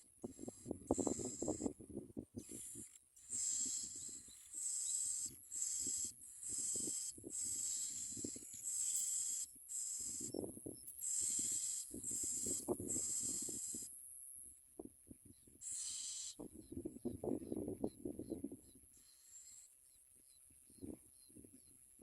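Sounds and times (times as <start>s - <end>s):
nestlings begging with hissing calls: 0.3s - 1.7s, 2.4s - 14.0s, 15.6s - 16.4s, 19.0s - 19.7s.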